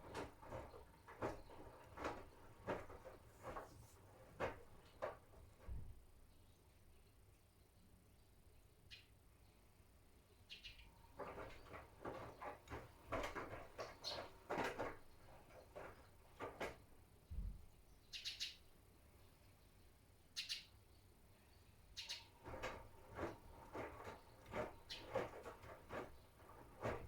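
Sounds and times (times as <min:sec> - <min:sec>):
laundry swishing in drum: 0:00.0 - 0:06.0, 0:11.2 - 0:16.9, 0:22.4 - 0:27.0.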